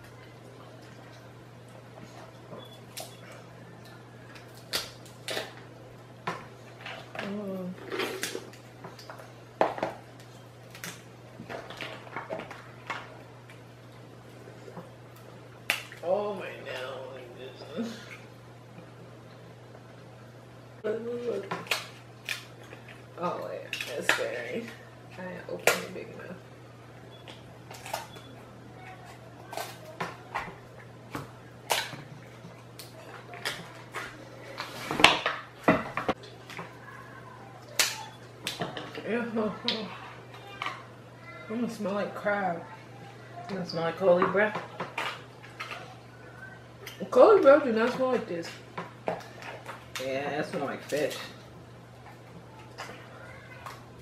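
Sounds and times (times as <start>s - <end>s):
crab shells cracking: 3.9s - 5.7s, 15.1s - 16.0s, 21.5s - 23.1s
crab shell cracking: 21.6s - 23.1s.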